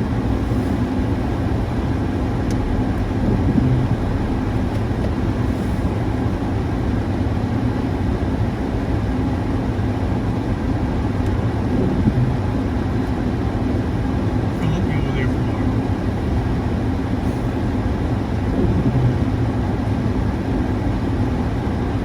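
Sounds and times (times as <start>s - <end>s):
faint hum: 0.0s - 6.9s
low rumble: 0.3s - 7.1s.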